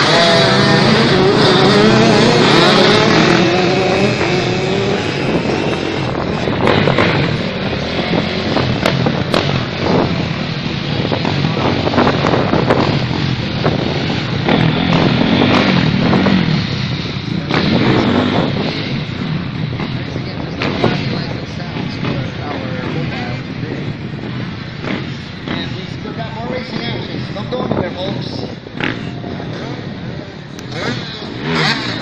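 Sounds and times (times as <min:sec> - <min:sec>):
dirt bike engines revving: 0:00.0 - 0:32.0.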